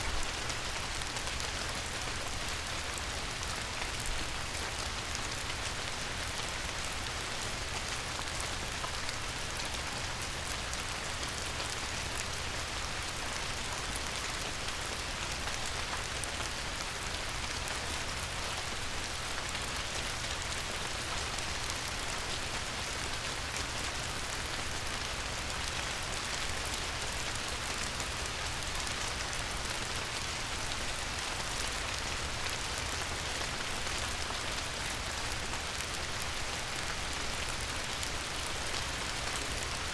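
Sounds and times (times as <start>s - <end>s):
light rain on river surface: 0.0s - 39.9s.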